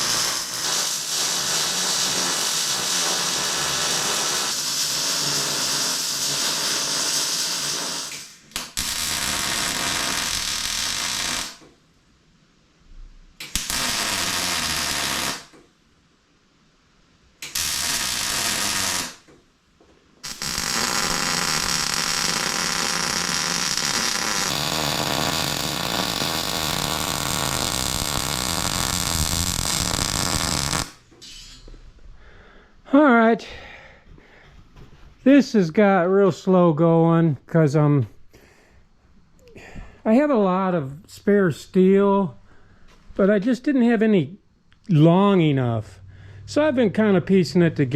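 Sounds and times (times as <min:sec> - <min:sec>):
welding arc crackling: 0:00.0 - 0:11.6, 0:13.4 - 0:15.6, 0:17.4 - 0:19.3, 0:20.2 - 0:31.1.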